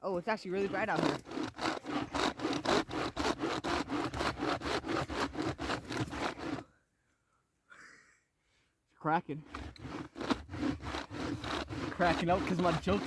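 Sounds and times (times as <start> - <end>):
hand saw rasping through wood: 0.5 - 6.7, 9.4 - 13.0.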